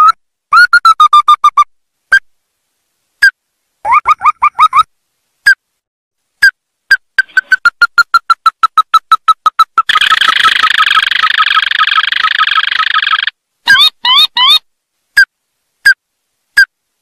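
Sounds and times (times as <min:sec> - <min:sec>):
crake calling notes: 0:06.4 - 0:14.6
fast dense bird trill: 0:07.2 - 0:14.6.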